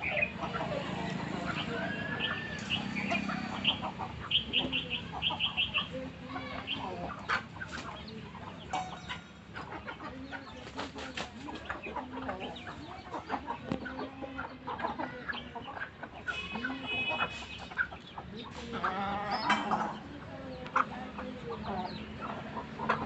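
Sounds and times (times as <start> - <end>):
chickens clucking: 0.0 - 23.0
high chirps: 8.7 - 9.6.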